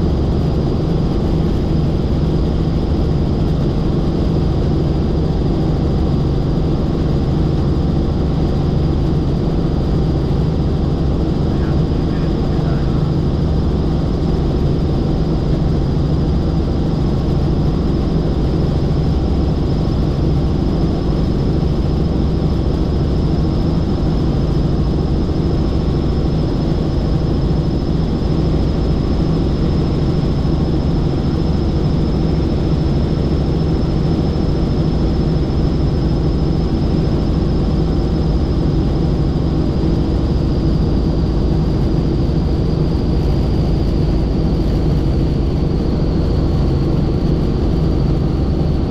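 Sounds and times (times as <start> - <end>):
helicopter engine and rotor: 0.0 - 48.9
high whine: 11.0 - 13.9.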